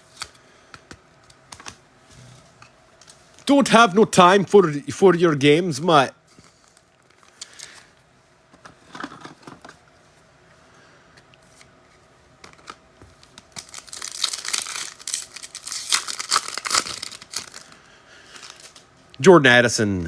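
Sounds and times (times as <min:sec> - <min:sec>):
foil wrapper crinkling and tearing: 0:12.5 - 0:18.8.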